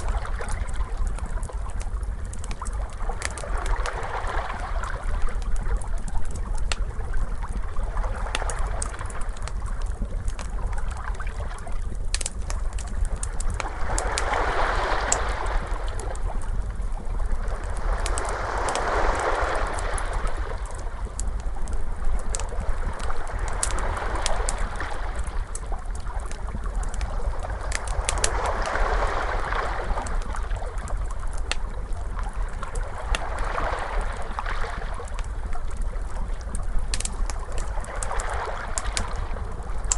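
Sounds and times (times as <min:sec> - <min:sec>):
steady low rumble: 0:00.0 - 0:39.9
wood fire crackling: 0:00.0 - 0:39.9
ocean waves washing in: 0:13.2 - 0:21.2, 0:21.8 - 0:26.0, 0:26.6 - 0:31.0.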